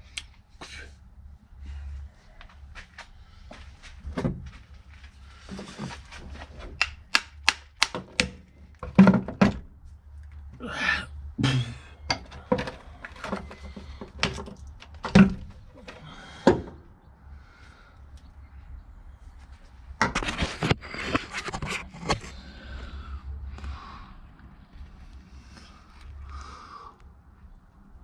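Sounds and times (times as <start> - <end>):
hand tools knocking and tapping: 6.8 - 9.5.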